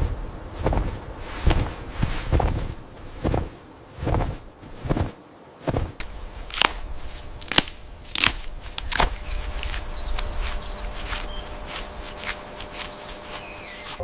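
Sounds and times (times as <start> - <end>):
footsteps crunching dry leaves: 6.2 - 14.0.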